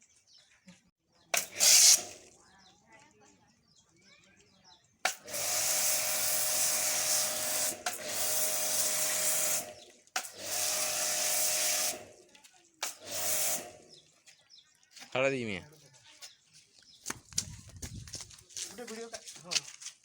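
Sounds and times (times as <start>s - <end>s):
pressure washer motor humming: 1.4s - 2.2s, 5.1s - 12.2s, 12.8s - 13.9s
pressure washer spraying: 1.4s - 2.3s, 5.1s - 12.2s, 12.8s - 13.9s.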